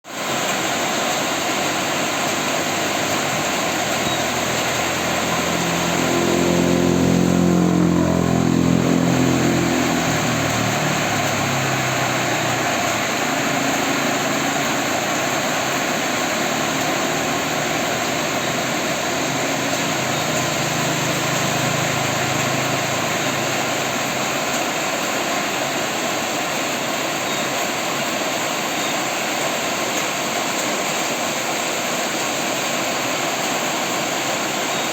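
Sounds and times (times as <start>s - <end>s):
steady rain: 0.0s - 34.9s
vehicle engine passing: 0.9s - 27.0s
faint engine hum: 1.1s - 28.8s.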